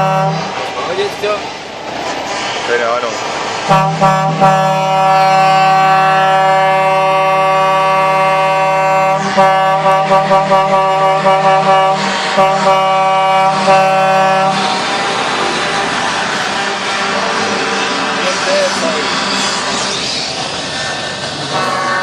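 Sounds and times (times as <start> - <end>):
truck air horn blasts: 0.0 - 0.5, 3.7 - 14.8, 21.5 - 22.0.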